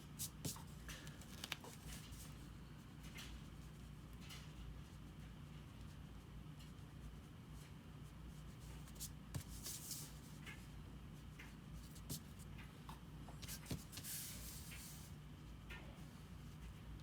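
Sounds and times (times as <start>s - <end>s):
light taps on paper: 0.2s - 2.3s, 8.7s - 10.6s, 11.4s - 14.9s.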